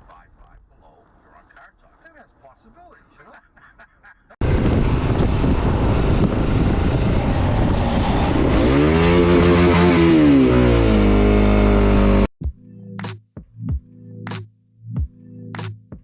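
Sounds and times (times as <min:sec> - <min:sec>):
rushing road and wind noise: 0:04.4 - 0:12.3
vehicle engine revving: 0:04.4 - 0:12.3.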